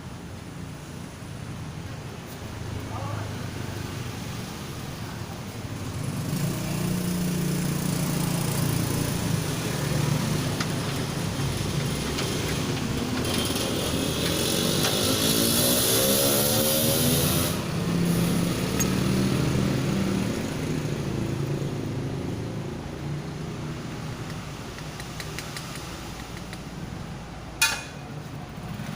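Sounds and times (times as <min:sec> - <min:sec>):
small engine revving: 0:11.8 - 0:21.6.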